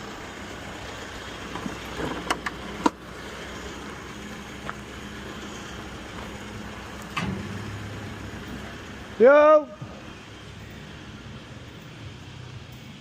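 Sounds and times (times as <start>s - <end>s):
vehicle engine running: 0.0s - 13.0s
sharp clicks and knocks: 1.5s - 3.0s, 7.0s - 7.6s.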